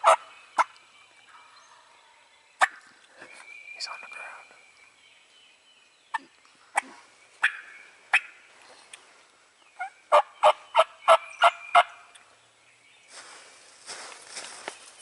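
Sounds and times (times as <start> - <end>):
turkey yelping: 7.4 - 8.4, 9.8 - 11.9
rustling in dry leaves: 12.9 - 15.0.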